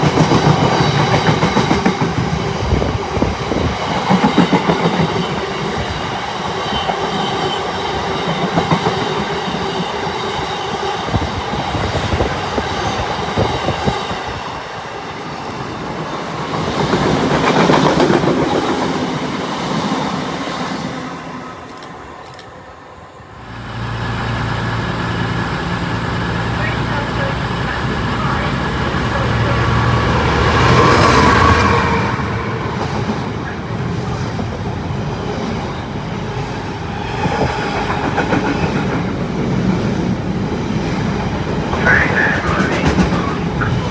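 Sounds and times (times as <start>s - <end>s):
train wheels clattering on rails: 0.0s - 14.4s, 15.3s - 19.2s, 32.7s - 43.9s.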